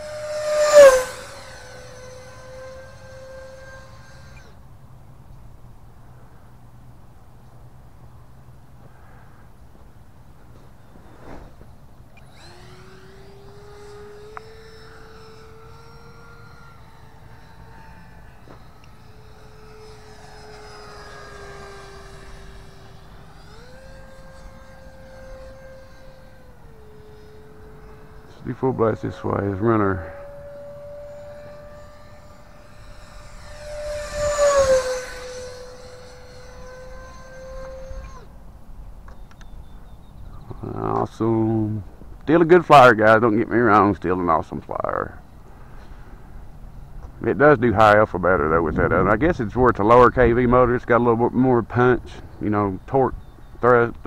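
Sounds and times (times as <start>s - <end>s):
electric ducted fan whining: 0.0s - 54.0s.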